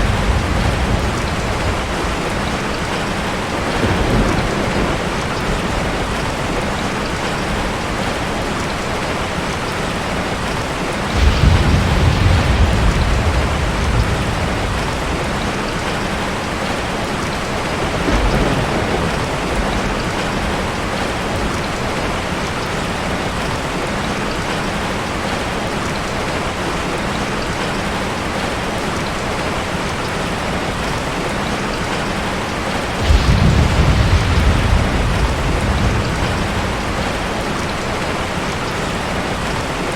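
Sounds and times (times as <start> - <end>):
thunder rumbling: 0.0 - 22.4, 32.5 - 39.9
heavy rain: 0.0 - 39.9.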